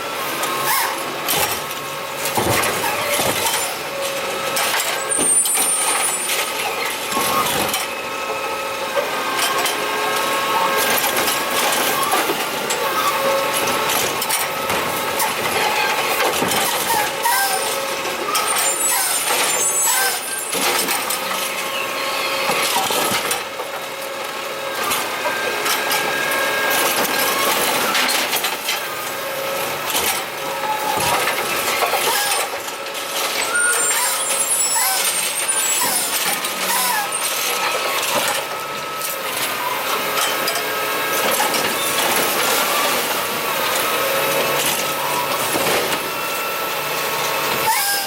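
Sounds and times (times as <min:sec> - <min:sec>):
garbage truck engine whining: 0:00.0 - 0:48.0
knocks and clatter: 0:02.3 - 0:03.6.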